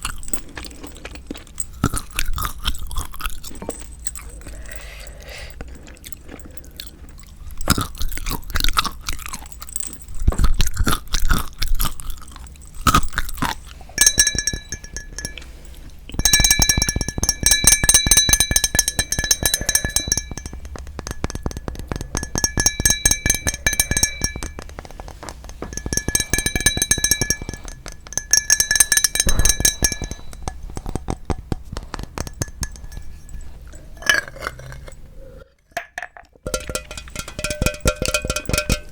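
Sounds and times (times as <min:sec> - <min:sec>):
crunchy wet chewing: 0:00.0 - 0:14.0.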